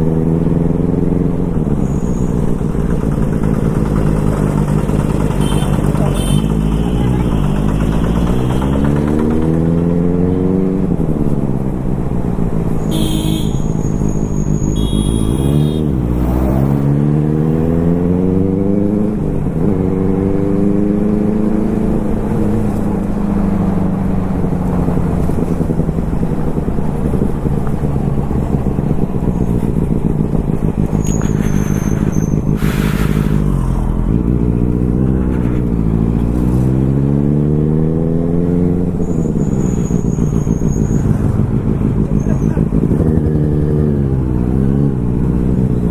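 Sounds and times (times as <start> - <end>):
motorcycle engine revving through gears: 0.0 - 45.9.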